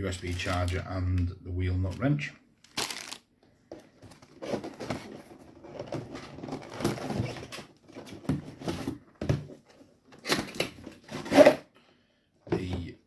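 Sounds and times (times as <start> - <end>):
packaging rustling: 0.1 - 0.8, 2.6 - 3.3.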